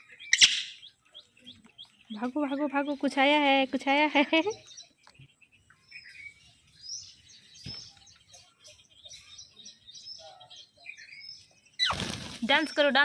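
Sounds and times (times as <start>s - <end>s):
parrots chirping: 0.0s - 3.0s, 8.6s - 12.2s.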